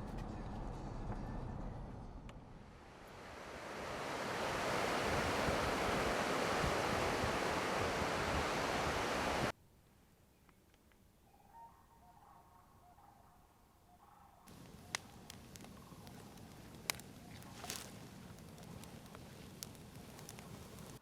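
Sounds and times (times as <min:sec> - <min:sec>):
steady rushing noise: 0:02.8 - 0:09.5.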